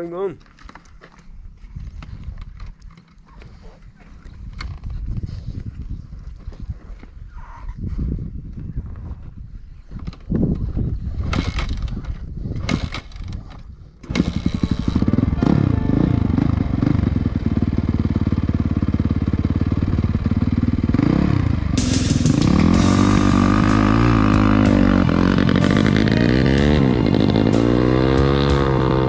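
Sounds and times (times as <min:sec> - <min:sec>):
motorcycle engine revving: 0:14.1 - 0:29.0
music: 0:14.9 - 0:17.5, 0:21.8 - 0:29.0
engine knocks and clatters: 0:16.1 - 0:29.0.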